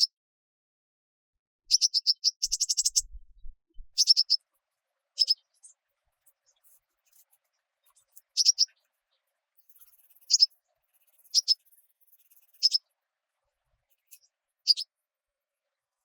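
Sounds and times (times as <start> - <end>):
small bird double chip calls: 1.7 - 3.2, 4.0 - 4.4, 8.4 - 8.7, 10.3 - 10.5, 11.3 - 11.6, 12.6 - 12.8.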